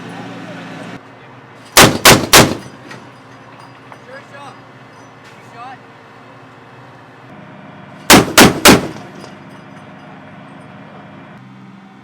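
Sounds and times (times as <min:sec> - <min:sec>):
chain gun firing a burst: 0:01.8 - 0:02.7, 0:08.1 - 0:09.3
vehicle engine running: 0:05.9 - 0:12.0.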